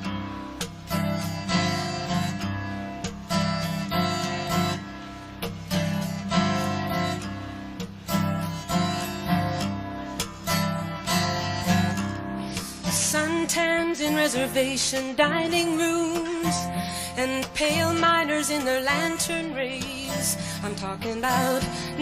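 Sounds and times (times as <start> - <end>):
acoustic guitar strumming: 0.0 - 22.0
person singing: 12.8 - 22.0.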